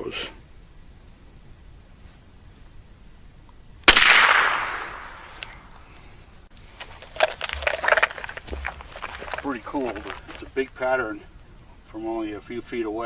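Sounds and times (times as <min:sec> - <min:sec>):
suppressed gunshot crack: 0:03.9 - 0:05.8.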